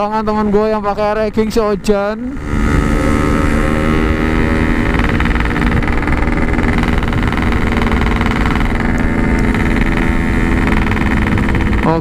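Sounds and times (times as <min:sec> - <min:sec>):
two-stroke engine running steadily: 0:00.0 - 0:12.0.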